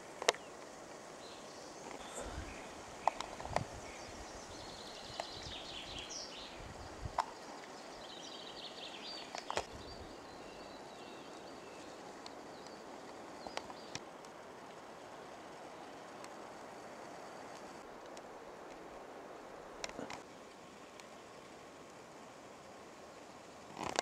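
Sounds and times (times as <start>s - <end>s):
background hiss: 0.0s - 24.0s
songbirds trilling: 1.2s - 14.0s.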